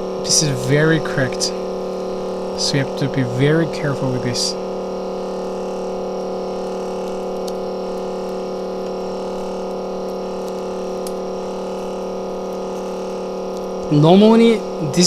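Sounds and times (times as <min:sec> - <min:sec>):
machine electrical hum: 0:00.0 - 0:15.0
faint ticks of cutting wire: 0:05.7 - 0:13.8.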